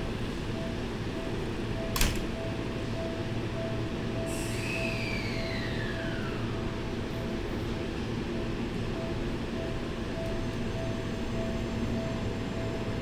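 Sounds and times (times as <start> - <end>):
train doors clunking shut: 1.9 - 2.4
pulsing short tone: 3.6 - 6.6
falling whistle: 4.3 - 6.5.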